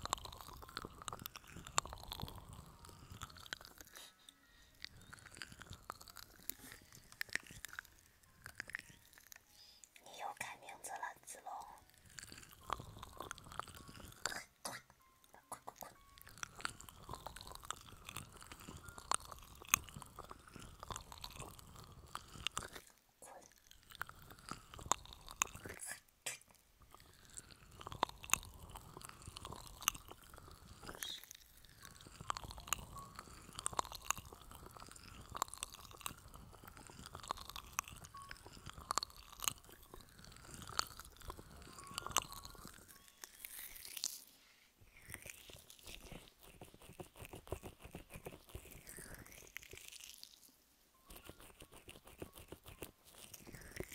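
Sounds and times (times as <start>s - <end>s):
scratching on microphone: 45.4s - 49.2s.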